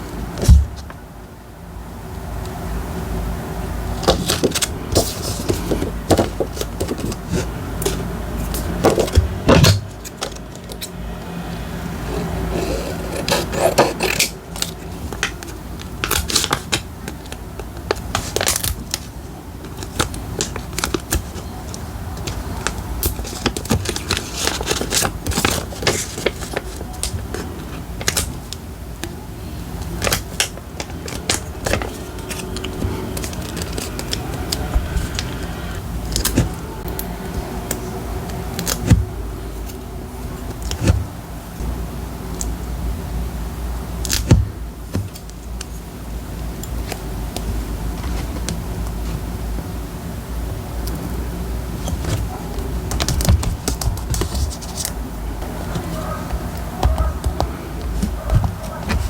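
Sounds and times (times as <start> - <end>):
paper crinkling and tapping: 4.0 - 11.0, 12.1 - 29.2, 29.8 - 41.2, 50.8 - 59.0.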